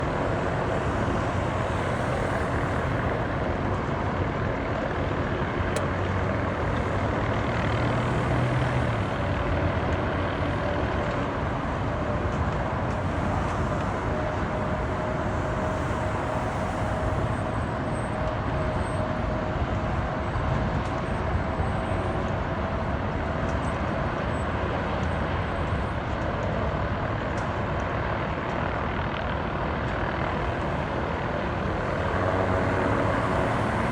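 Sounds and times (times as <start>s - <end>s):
faint whine: 0.0s - 20.2s, 28.6s - 33.9s
helicopter rumble: 0.0s - 33.9s.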